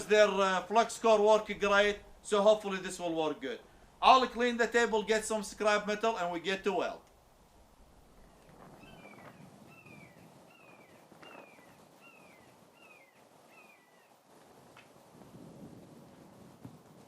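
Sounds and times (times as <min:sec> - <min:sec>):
bird chirping faintly: 0:08.0 - 0:14.2.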